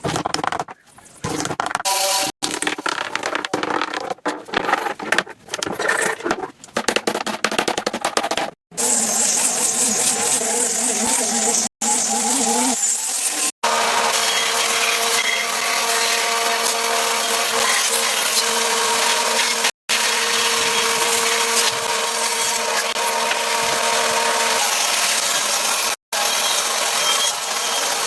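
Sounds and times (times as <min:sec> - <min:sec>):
electric power tool working wood: 0:08.8 - 0:28.0.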